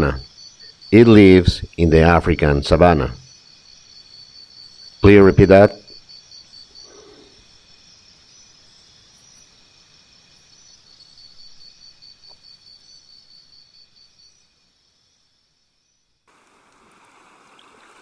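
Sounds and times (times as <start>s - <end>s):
faint cricket chirping: 0.0s - 18.0s.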